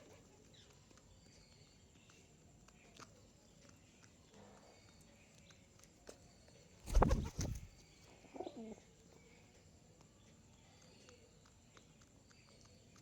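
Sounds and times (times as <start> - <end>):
pigeon cooing: 6.9 - 8.8.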